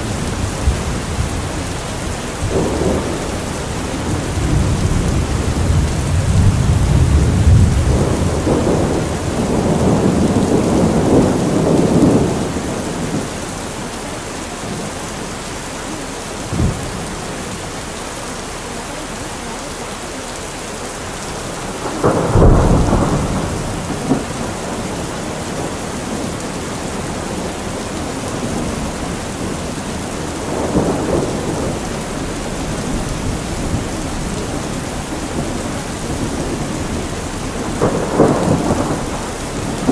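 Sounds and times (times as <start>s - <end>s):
thunder clap: 0.0s - 13.3s, 21.4s - 39.9s
thunder rumbling: 0.0s - 18.1s, 20.6s - 39.9s
steady rain: 0.0s - 39.9s.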